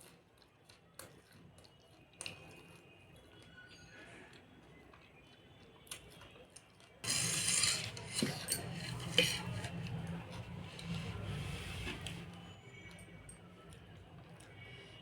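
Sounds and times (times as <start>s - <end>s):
food scraped against a plate: 7.0s - 12.3s.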